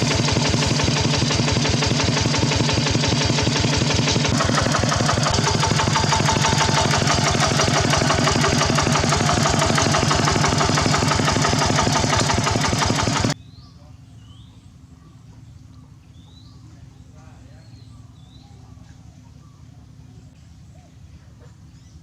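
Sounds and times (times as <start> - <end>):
single-cylinder tractor engine running: 0.0 - 13.4.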